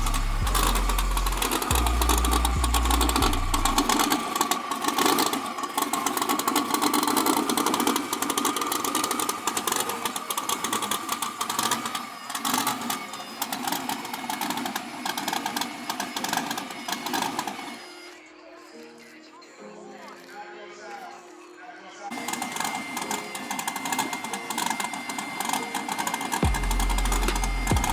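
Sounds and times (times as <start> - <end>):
low bass tones: 0.0 - 4.0, 26.4 - 27.9
vehicle engine running: 0.0 - 5.3, 26.4 - 27.9
clattery noise: 0.0 - 19.2, 22.1 - 27.9.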